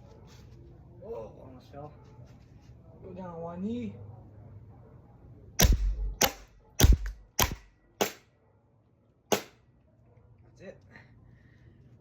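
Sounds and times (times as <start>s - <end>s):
airsoft pistol shots: 5.6s - 8.3s, 9.3s - 9.6s.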